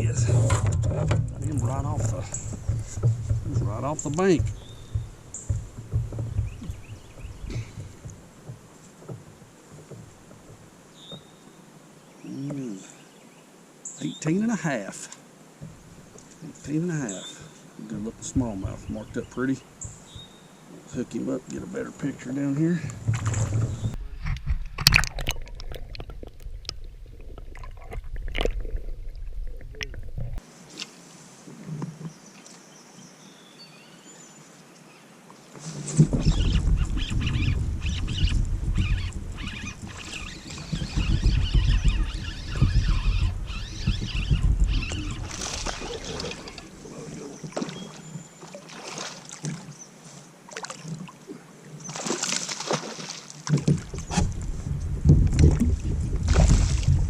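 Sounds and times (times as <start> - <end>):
water sloshing around a kayak: 0.0 - 11.5, 17.1 - 32.6, 35.4 - 57.0
light knocks and clicks: 0.3 - 11.2.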